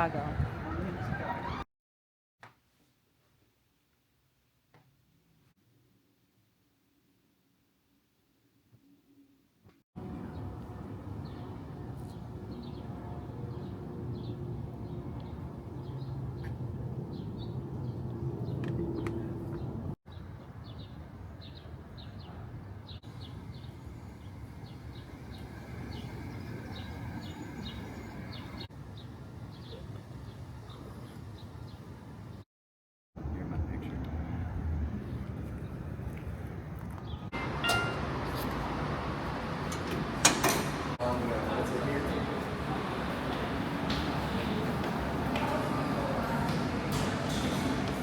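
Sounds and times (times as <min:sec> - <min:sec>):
birds chirping: 0:10.2 - 0:32.4
low outdoor rumble: 0:23.0 - 0:32.4.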